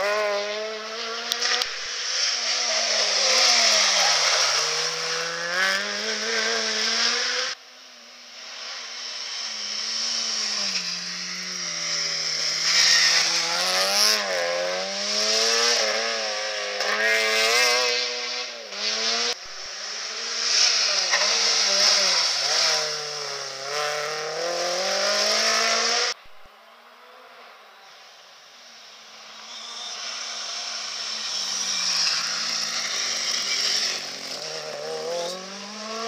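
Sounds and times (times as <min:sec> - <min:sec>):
rally car engines revving: 0:00.0 - 0:28.0, 0:28.6 - 0:36.0.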